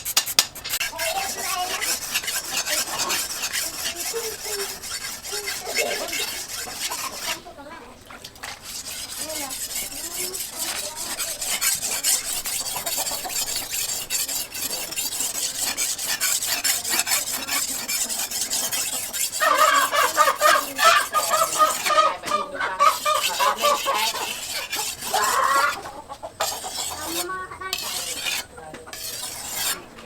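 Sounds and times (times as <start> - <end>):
rapid scraping strokes: 0.0 - 30.0
fowl calling: 9.8 - 29.9.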